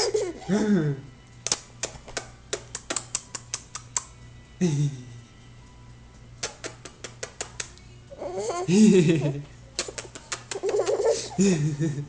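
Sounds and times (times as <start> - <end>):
baby clicking noises: 1.4 - 4.1, 6.4 - 7.8, 9.8 - 11.1.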